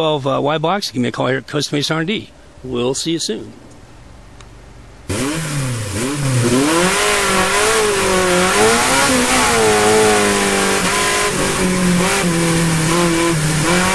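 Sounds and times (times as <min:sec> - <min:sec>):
car engine revving: 0:05.0 - 0:13.9
loud steady rushing noise: 0:05.1 - 0:13.9.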